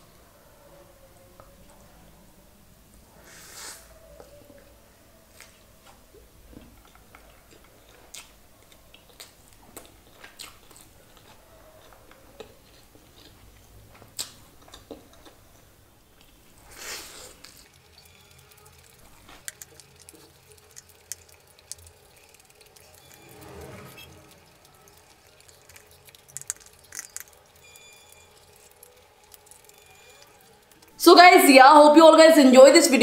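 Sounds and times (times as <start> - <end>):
person chewing and smacking: 6.6 - 15.6, 17.3 - 23.2, 24.3 - 31.0.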